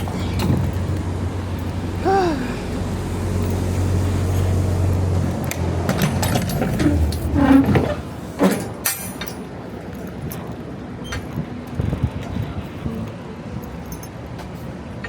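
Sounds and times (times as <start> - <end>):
vehicle engine humming: 0.0 - 11.0
knocks and clatters: 5.1 - 9.5.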